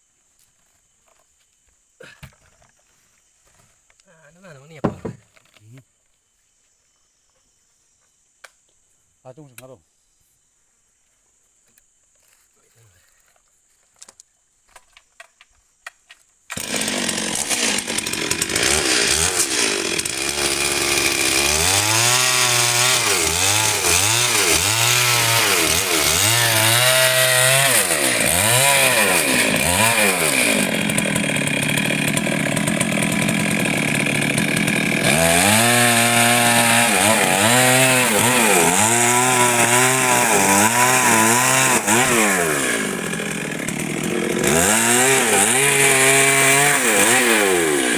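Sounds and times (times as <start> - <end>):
chainsaw revving in a cut: 16.5 - 47.9.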